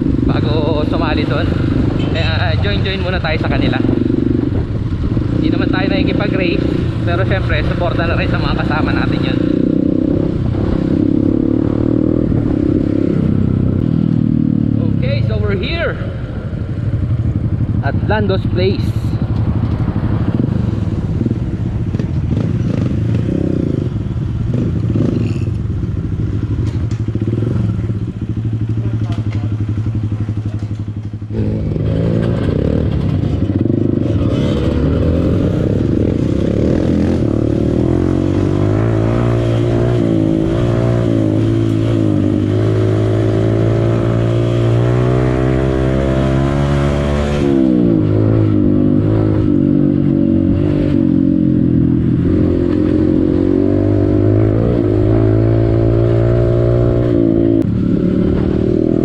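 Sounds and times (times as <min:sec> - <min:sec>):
dirt bike engine revving: 0:19.4 - 0:59.0.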